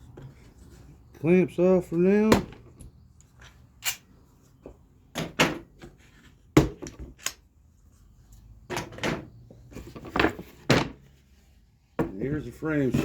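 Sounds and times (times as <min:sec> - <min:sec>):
wooden boards set down on bench: 0:08.7 - 0:11.0, 0:12.0 - 0:12.3.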